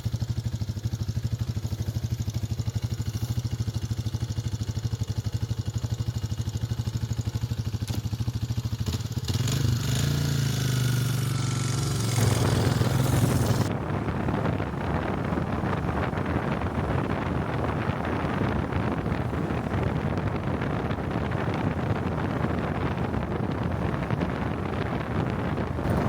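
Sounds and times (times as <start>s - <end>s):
motorcycle engine running: 0.0s - 26.0s
wind rushing over microphone: 8.6s - 26.0s.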